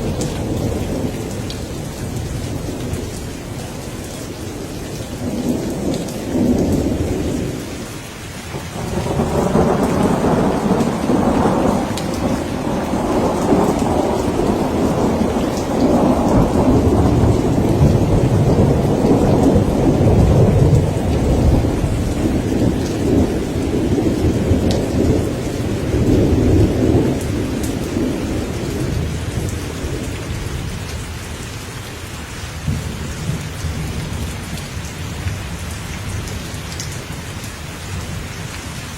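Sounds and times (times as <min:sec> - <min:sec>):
steady rain: 0:00.0 - 0:38.9
rolling thunder rumble: 0:08.5 - 0:31.0.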